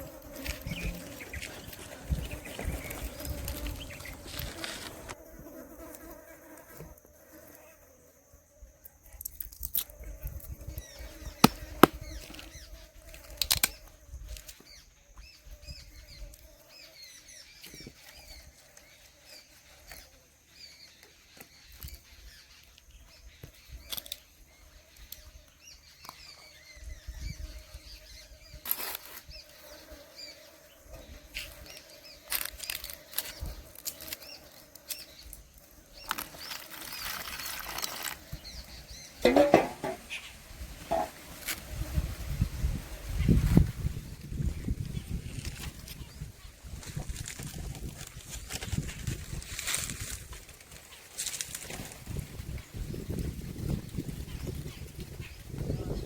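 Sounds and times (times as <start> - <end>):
birds chirping: 0.0 - 5.2, 29.3 - 41.4
handling knocks and clicks: 39.2 - 40.1.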